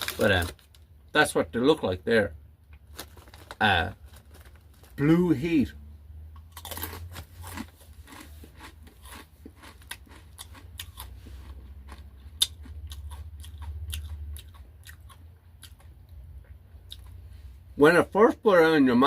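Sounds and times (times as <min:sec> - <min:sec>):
chip crunching while chewed: 0:00.0 - 0:00.8, 0:02.8 - 0:05.2, 0:06.4 - 0:15.9.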